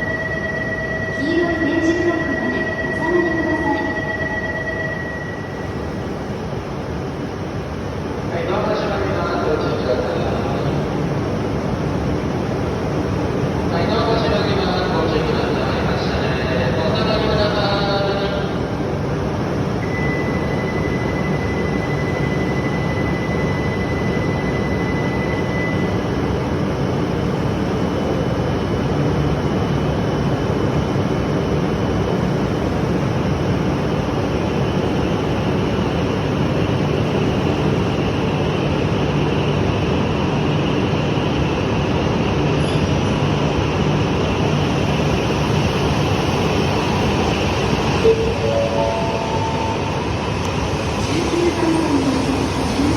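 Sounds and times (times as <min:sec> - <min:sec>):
train running rumble: 0:05.6 - 0:52.9
thin high whine: 0:47.9 - 0:52.9.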